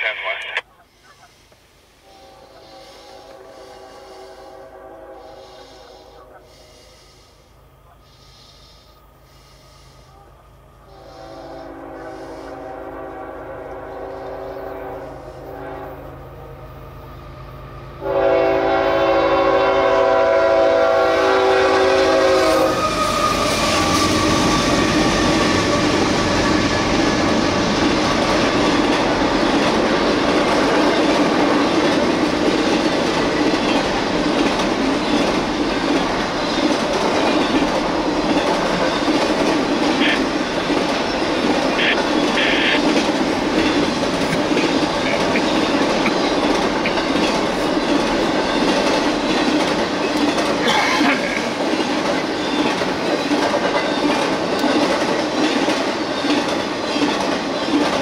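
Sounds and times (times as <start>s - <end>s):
freight train cars rumbling: 0.0s - 58.0s
wheels clacking on rail joints: 28.0s - 58.0s.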